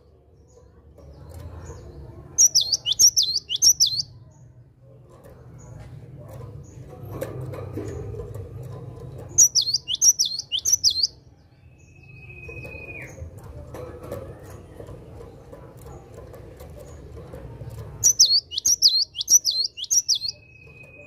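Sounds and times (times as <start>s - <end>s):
bird chirping sharply: 2.4s - 4.2s, 9.4s - 11.2s, 18.0s - 21.0s.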